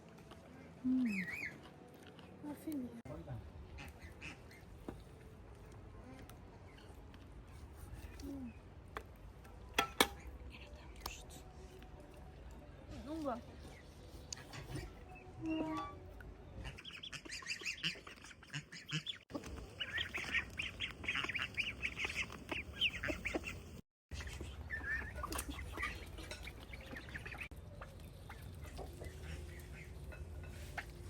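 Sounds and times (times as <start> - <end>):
ducks calling: 3.6 - 4.8, 16.5 - 31.0.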